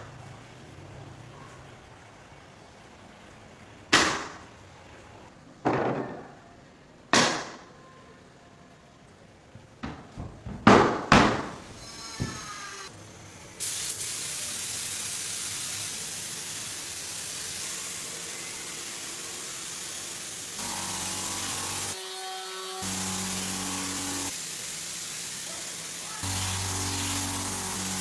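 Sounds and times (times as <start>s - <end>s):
spraying hiss: 13.6s - 28.0s.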